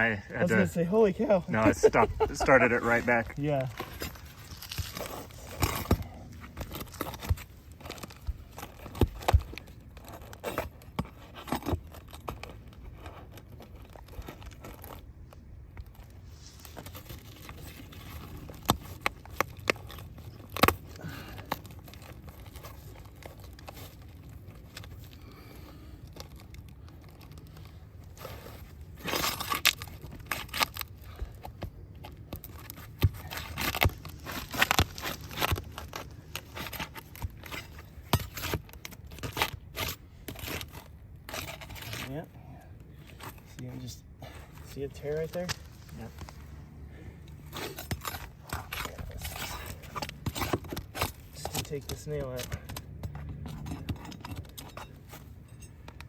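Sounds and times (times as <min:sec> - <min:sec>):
roof shingles being peeled up: 0:01.5 - 0:42.2.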